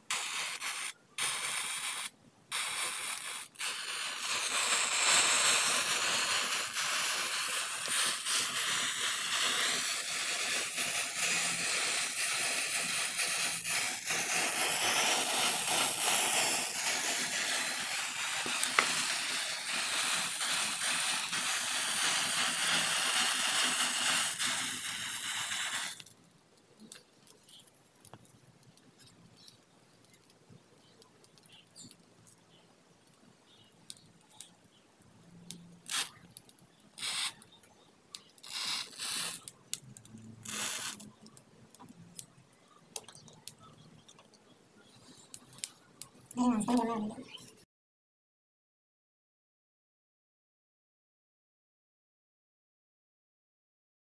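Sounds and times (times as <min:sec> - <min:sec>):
matches flaring with hissing fizz: 0:00.0 - 0:26.2, 0:26.8 - 0:30.3, 0:33.5 - 0:42.3, 0:44.9 - 0:47.6
burning sticks crackling: 0:00.1 - 0:47.6.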